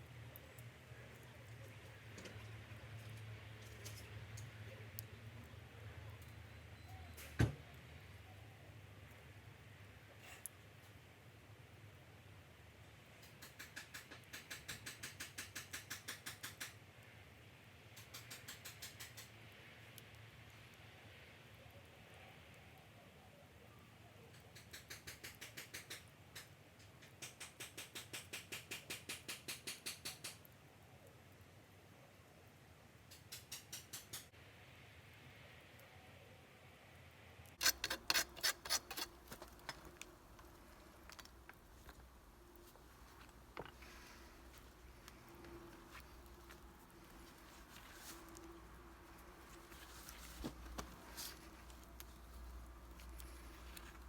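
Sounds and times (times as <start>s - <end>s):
blade shaving wood: 37.6s - 40.6s
knife scraping wood: 37.6s - 40.6s.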